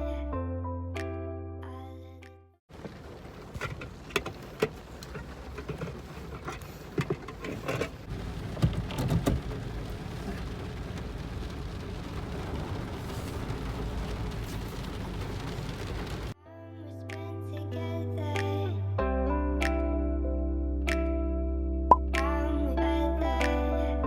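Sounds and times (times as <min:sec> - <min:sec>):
steady rain: 0:02.7 - 0:16.4.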